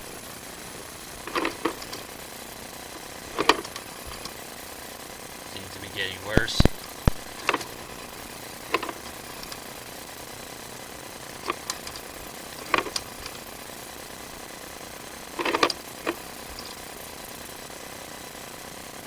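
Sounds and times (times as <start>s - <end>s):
steady hiss: 0.0s - 19.0s
cable reel clicks and clatters: 1.2s - 4.4s, 7.0s - 13.9s, 14.6s - 16.9s.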